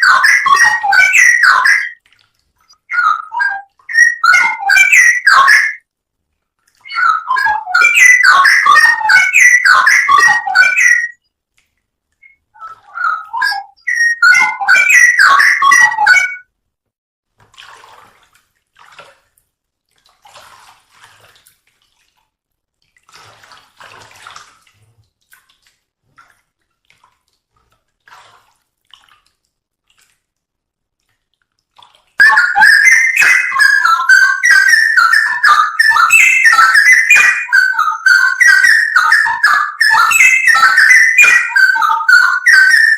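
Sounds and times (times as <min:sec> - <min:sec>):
bird whistled song: 0:00.0 - 0:02.0, 0:02.8 - 0:05.8, 0:06.8 - 0:11.2, 0:12.2 - 0:16.4, 0:32.2 - 0:42.9.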